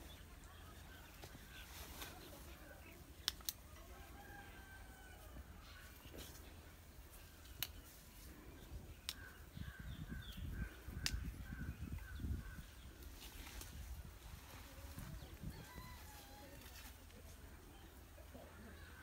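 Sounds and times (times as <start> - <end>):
sharp clicks: 3.2 - 3.6, 7.4 - 7.9, 9.0 - 9.3.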